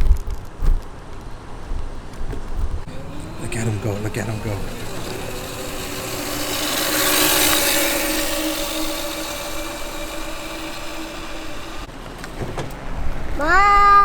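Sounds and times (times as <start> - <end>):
tyre and road noise: 2.1 - 13.4
electric motor humming: 2.9 - 11.9.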